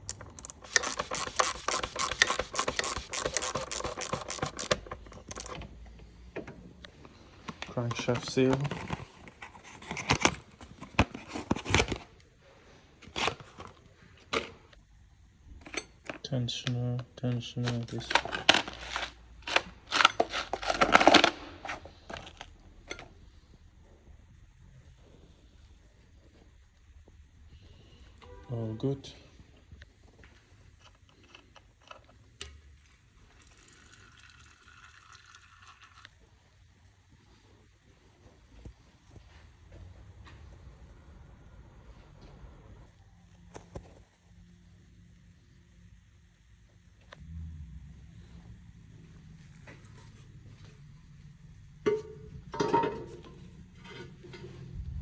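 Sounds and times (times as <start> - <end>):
plastic packaging crinkling: 17.6 - 22.5.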